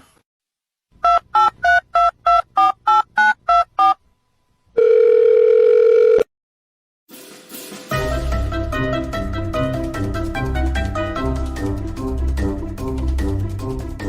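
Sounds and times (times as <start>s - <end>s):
steady telephone tone: 4.7s - 6.3s.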